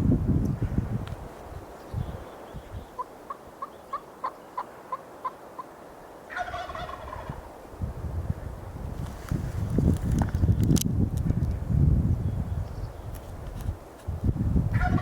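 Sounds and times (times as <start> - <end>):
short turkey yelps: 6.3 - 7.3
turkey rattling gobble: 6.3 - 7.4, 14.8 - 15.0.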